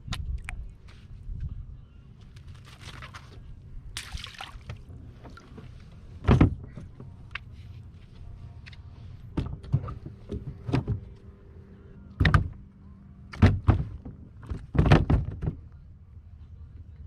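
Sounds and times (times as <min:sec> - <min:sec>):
knocks and thumps on kayak: 0:06.2 - 0:06.8, 0:09.3 - 0:11.1, 0:13.4 - 0:15.6.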